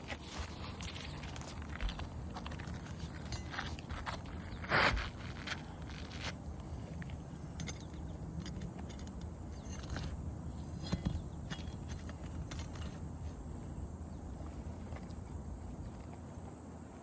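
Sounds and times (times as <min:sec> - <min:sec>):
footsteps on shingle roof: 0:00.0 - 0:07.3
low steady rumble: 0:00.0 - 0:17.0.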